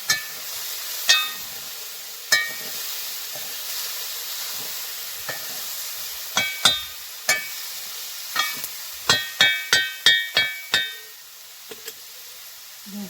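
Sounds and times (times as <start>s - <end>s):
metal utensil striking pan: 0.0s - 1.6s, 2.3s - 3.6s, 5.2s - 5.6s, 6.3s - 7.6s, 8.3s - 12.0s
frying food hissing: 0.0s - 13.0s.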